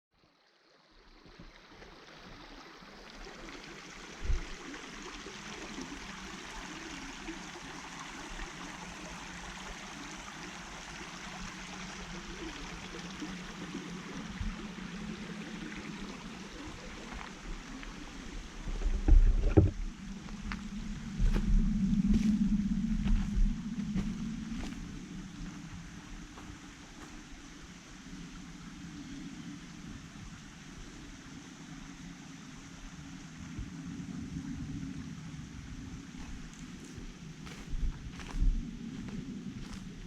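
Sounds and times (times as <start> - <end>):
steady outdoor rushing noise: 11.5 - 40.0.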